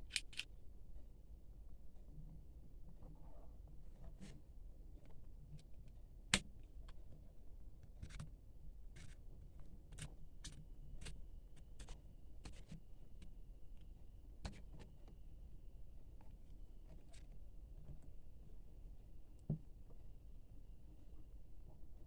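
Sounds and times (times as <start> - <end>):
packaging clicks and ticks: 0.0 - 0.5
sharp click: 0.1 - 0.5.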